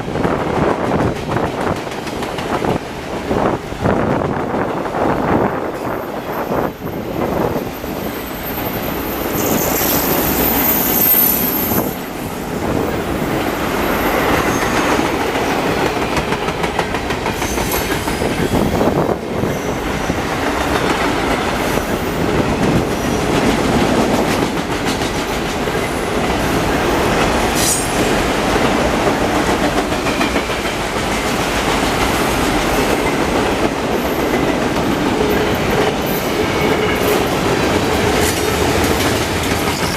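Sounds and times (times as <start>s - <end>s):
train wheels clacking on rails: 0.0s - 4.9s, 5.7s - 39.9s
high wheel squeal: 6.1s - 12.4s.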